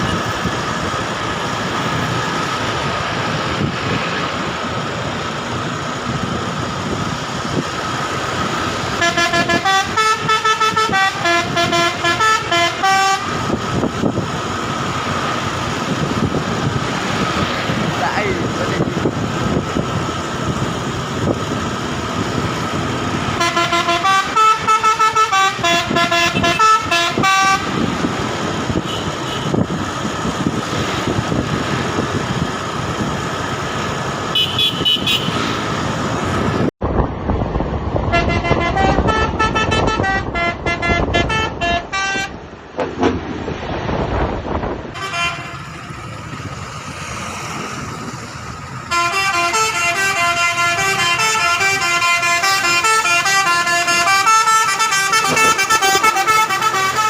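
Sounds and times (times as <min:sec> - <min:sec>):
road noise: 0:00.0 - 0:57.0
truck engine running: 0:00.0 - 0:57.0
musical truck horn: 0:08.8 - 0:13.6, 0:23.1 - 0:27.9, 0:28.7 - 0:29.7, 0:34.3 - 0:35.6, 0:38.1 - 0:42.4, 0:44.9 - 0:46.0, 0:48.8 - 0:57.0.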